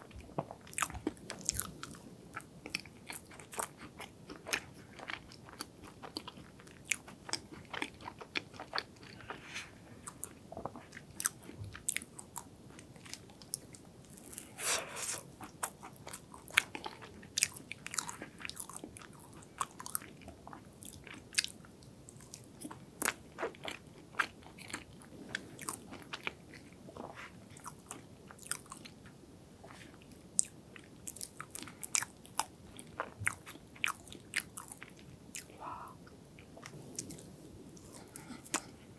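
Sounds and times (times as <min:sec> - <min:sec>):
wet mouth chewing sounds: 0:29.6 - 0:38.8.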